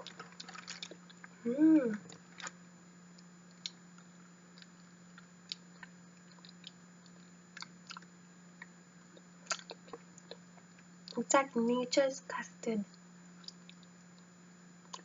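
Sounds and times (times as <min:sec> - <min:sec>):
wet chewing: 0:03.2 - 0:10.9, 0:13.4 - 0:15.0
mouth clicks and smacks: 0:04.6 - 0:11.2, 0:13.4 - 0:15.0.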